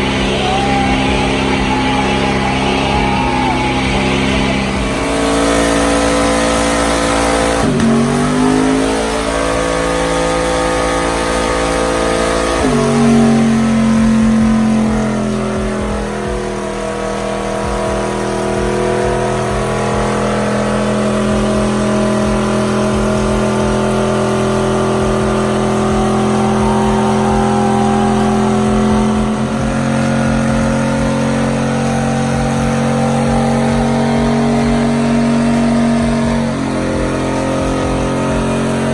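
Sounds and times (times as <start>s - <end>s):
truck engine revving high: 0.0s - 38.9s.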